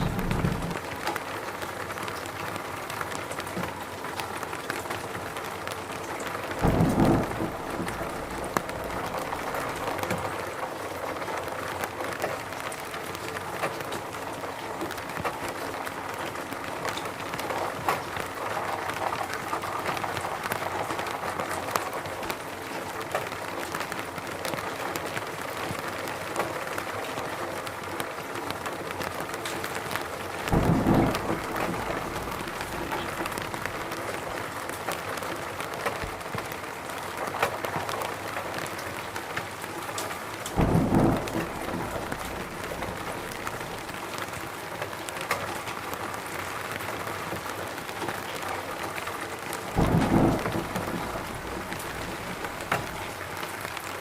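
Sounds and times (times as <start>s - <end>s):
short low rumble: 0.0s - 0.8s
rain falling in a forest: 0.0s - 54.0s.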